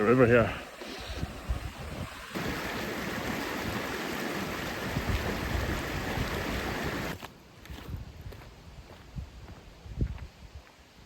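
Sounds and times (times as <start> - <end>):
river water rushing: 0.1 - 7.2.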